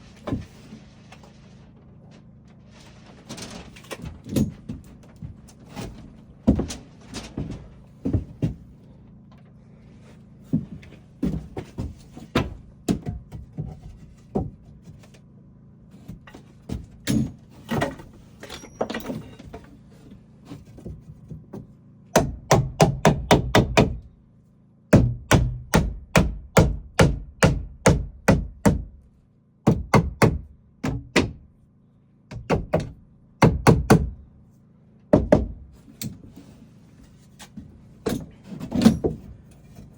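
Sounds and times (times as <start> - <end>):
hammering on wood: 21.4 - 24.1, 24.9 - 29.0, 29.6 - 31.5, 32.3 - 34.2, 35.1 - 35.7.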